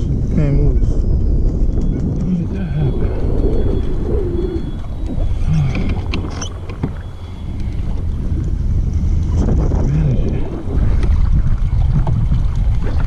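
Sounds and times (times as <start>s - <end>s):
wind buffeting microphone: 0.0s - 13.0s
kayak clicks and knocks: 5.0s - 8.6s.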